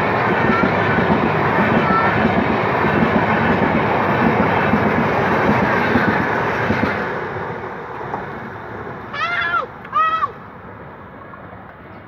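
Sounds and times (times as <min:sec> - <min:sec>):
train wheels clattering over rails: 0:00.0 - 0:08.8.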